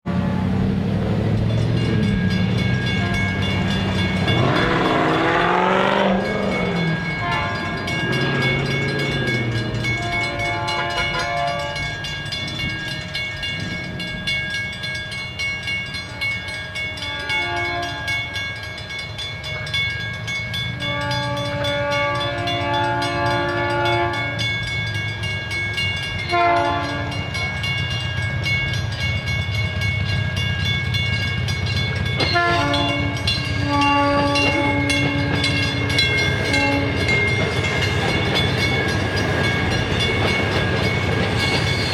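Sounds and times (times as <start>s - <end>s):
train rumbling: 0.0s - 41.9s
bell ringing: 1.4s - 41.9s
train horn blasts: 2.8s - 12.1s, 16.0s - 18.5s, 20.8s - 24.6s, 26.2s - 27.4s, 32.2s - 37.3s.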